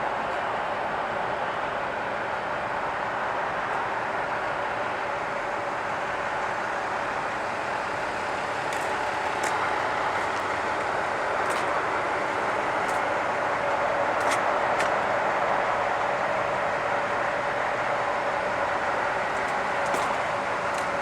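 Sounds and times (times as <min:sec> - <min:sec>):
vehicle hum: 0:05.9 - 0:21.0.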